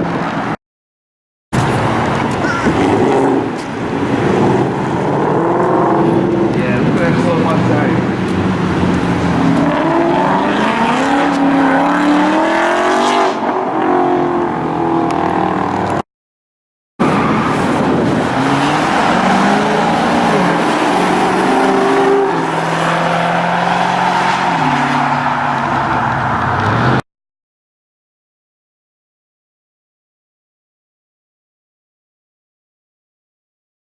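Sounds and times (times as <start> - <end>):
car engines accelerating: 1.6 - 16.0, 17.0 - 27.0.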